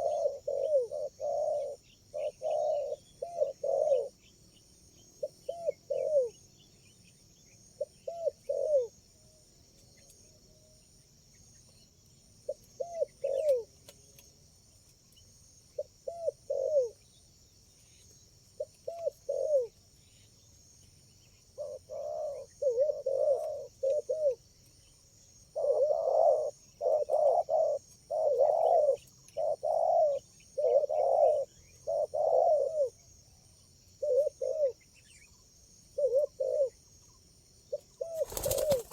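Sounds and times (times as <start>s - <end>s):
doves cooing: 0.0s - 4.2s, 5.2s - 6.4s, 7.8s - 8.9s, 12.5s - 13.7s, 15.8s - 17.0s, 18.6s - 19.7s, 21.5s - 24.4s, 25.5s - 33.0s, 34.0s - 34.8s, 36.0s - 36.8s, 37.7s - 38.9s.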